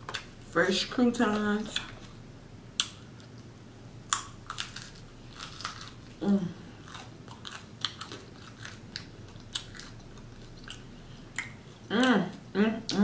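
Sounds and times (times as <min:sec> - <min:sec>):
crunchy chewing: 0:04.1 - 0:11.9
person humming: 0:06.2 - 0:06.6.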